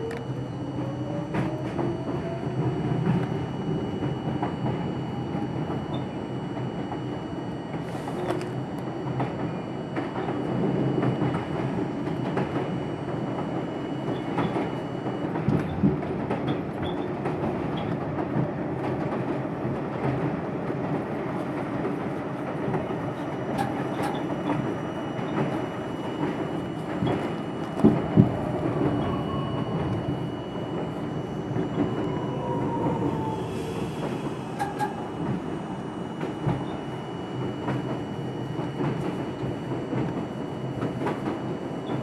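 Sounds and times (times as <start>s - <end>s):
wheels rumbling on rail: 0.0s - 42.0s.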